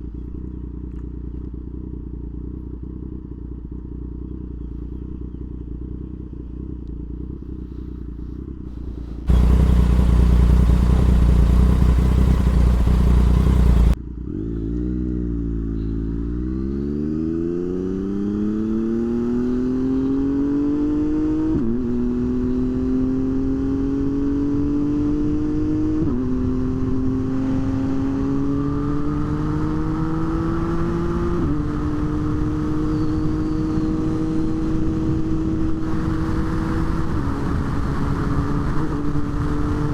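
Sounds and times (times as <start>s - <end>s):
low steady rumble: 6.2s - 14.0s
motorcycle engine accelerating: 8.8s - 15.5s, 16.8s - 39.9s.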